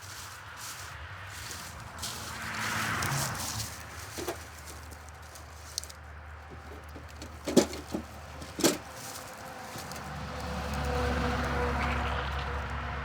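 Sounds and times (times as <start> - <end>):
dry sticks cracking: 1.4 - 11.6.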